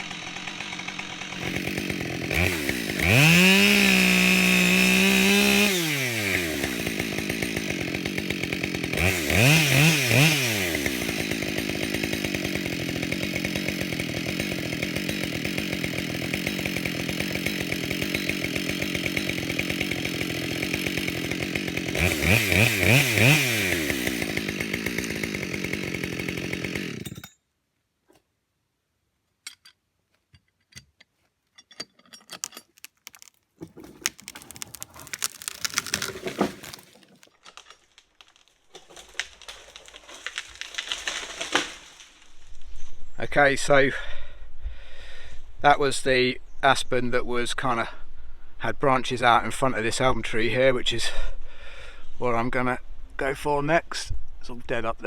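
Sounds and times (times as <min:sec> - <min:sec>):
chainsaw revving and idling: 0:00.0 - 0:27.3, 0:33.0 - 0:37.3, 0:39.0 - 0:42.2.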